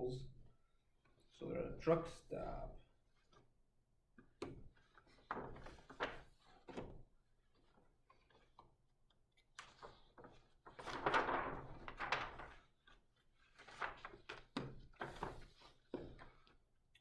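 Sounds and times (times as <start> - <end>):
book pages rustling: 9.4 - 16.6.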